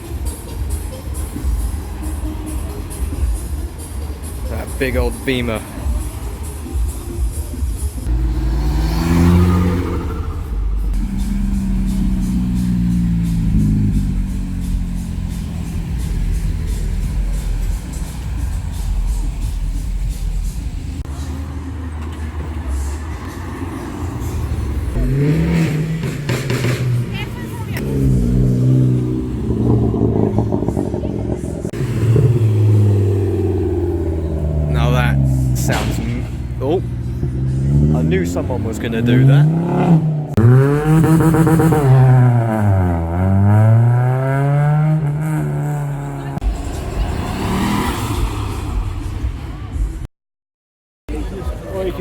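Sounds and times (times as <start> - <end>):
car engines rumbling: 0.0 - 50.1.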